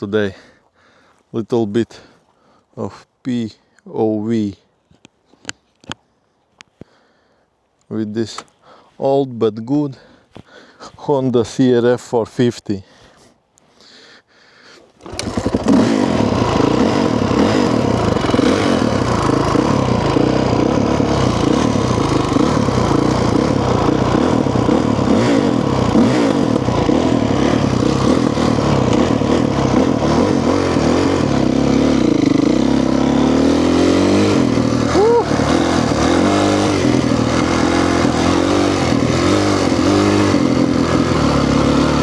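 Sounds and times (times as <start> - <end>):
dirt bike engine revving: 15.0 - 42.0.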